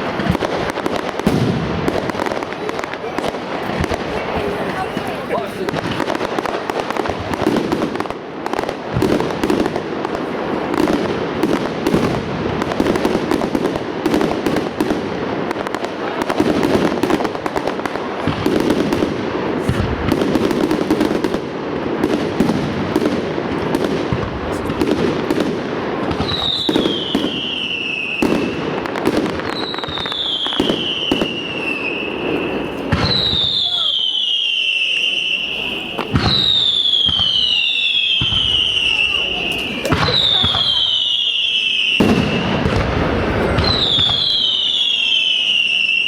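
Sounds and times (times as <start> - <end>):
fireworks banging and crackling: 0.0 - 46.0
firework whistles falling in pitch: 26.2 - 28.6, 29.4 - 42.8, 43.5 - 46.0.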